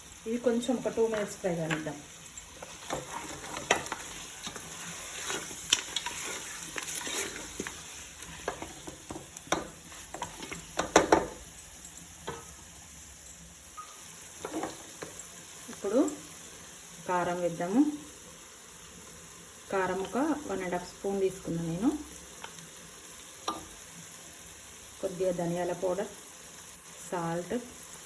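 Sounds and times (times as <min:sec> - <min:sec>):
chicken sizzling in a pan: 0:00.0 - 0:28.0
spoon scraping and knocking pan: 0:01.0 - 0:11.5, 0:12.2 - 0:12.6, 0:13.8 - 0:15.2, 0:23.4 - 0:23.8.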